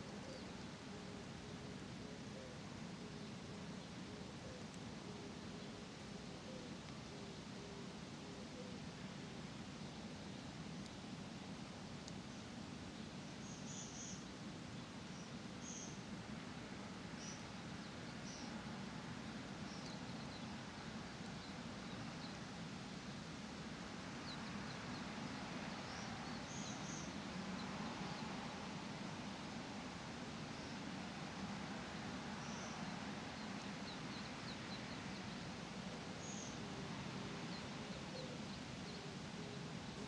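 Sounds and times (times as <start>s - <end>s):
small birds chirping: 9.8s - 16.1s, 17.0s - 29.6s, 32.3s - 40.0s.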